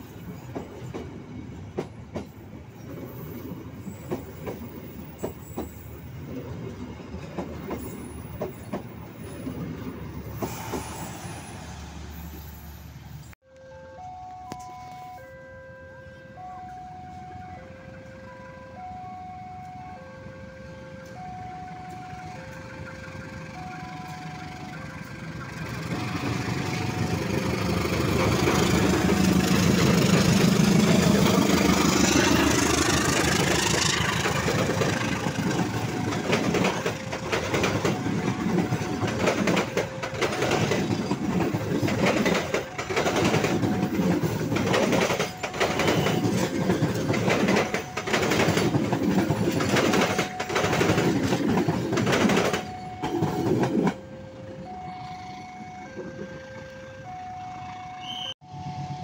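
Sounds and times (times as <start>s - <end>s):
two-tone crossing alarm: 13.4s - 59.0s
locomotive engine running: 21.8s - 58.0s
wheels clattering over rail joints: 25.7s - 54.0s.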